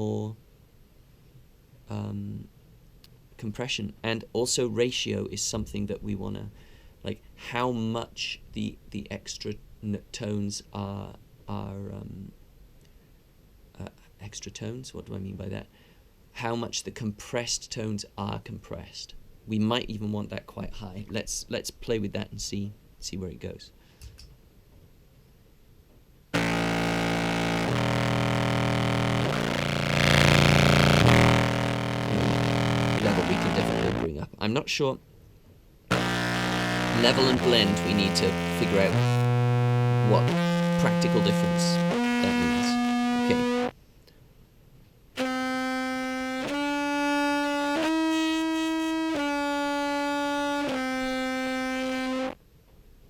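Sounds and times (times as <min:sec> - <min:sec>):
distorted low clarinet notes: 0:26.4 - 0:34.1, 0:35.9 - 0:43.7, 0:45.2 - 0:52.4.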